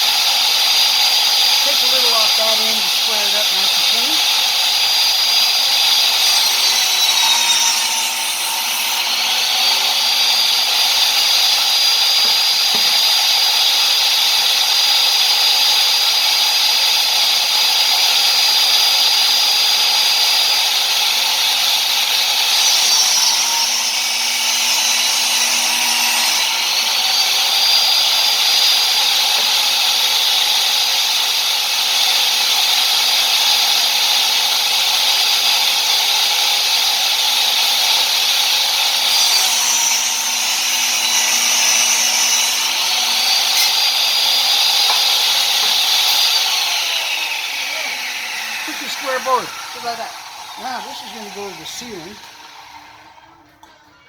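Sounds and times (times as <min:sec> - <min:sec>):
table saw cutting wood: 0:00.0 - 0:53.4.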